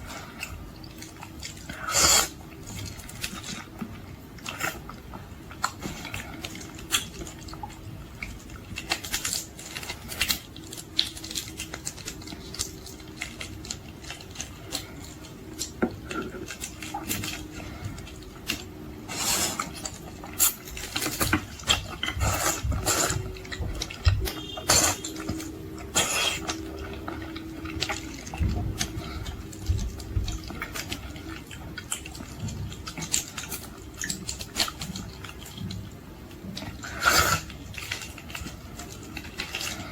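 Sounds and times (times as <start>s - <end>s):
faint steady hum: 0.0s - 39.9s
wet chewing and smacking: 0.0s - 39.9s
slurping: 1.4s - 3.4s, 16.0s - 34.8s, 36.7s - 39.9s.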